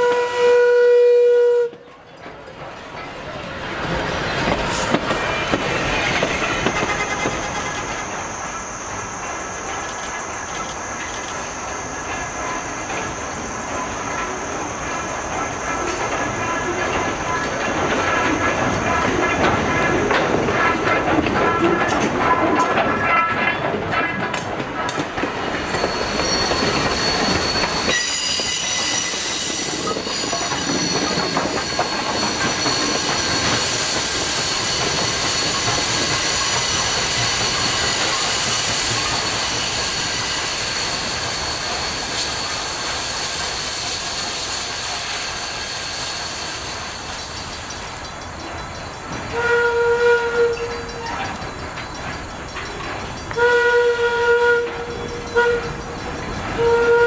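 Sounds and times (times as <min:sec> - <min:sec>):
locomotive whistle blasts: 0:00.0 - 0:01.8, 0:25.8 - 0:34.8, 0:49.3 - 0:51.1, 0:53.4 - 0:55.8, 0:56.6 - 0:57.0
train rumbling past: 0:00.0 - 0:57.0
wheels clicking over rail joints: 0:01.7 - 0:08.5, 0:09.1 - 0:39.7, 0:46.8 - 0:57.0.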